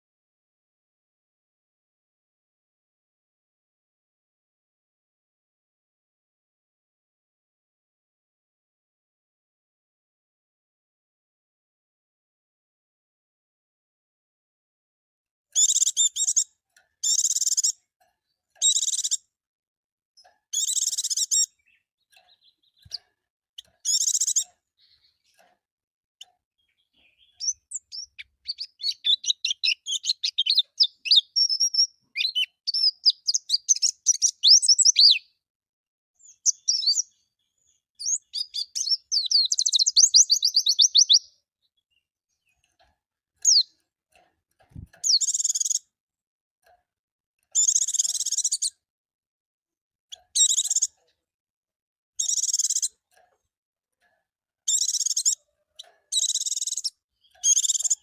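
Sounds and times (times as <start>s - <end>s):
bird singing chattering song: 15.6s - 19.3s, 20.2s - 25.4s, 26.2s - 35.4s, 36.2s - 42.7s, 43.4s - 43.8s, 44.7s - 45.9s, 47.5s - 48.8s, 50.1s - 51.1s, 52.2s - 53.0s, 54.7s - 58.0s.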